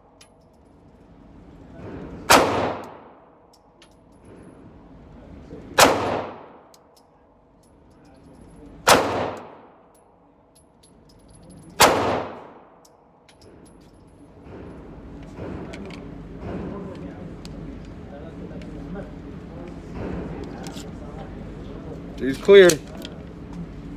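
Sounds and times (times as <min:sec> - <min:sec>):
pistol shots with echo: 0:02.3 - 0:03.4, 0:05.8 - 0:06.8, 0:08.8 - 0:09.9, 0:11.8 - 0:12.8.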